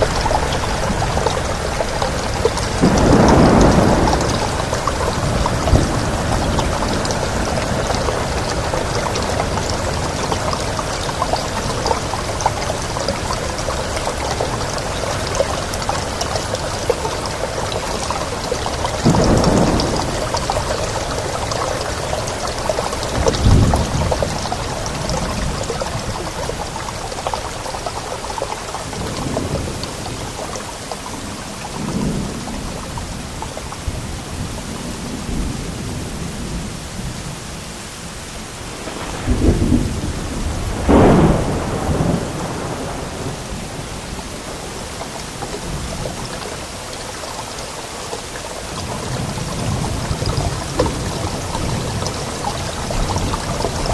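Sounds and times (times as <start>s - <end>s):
thunder rumbling: 0.0s - 28.1s, 38.7s - 46.4s, 48.6s - 53.9s
heavy rain: 0.0s - 53.9s.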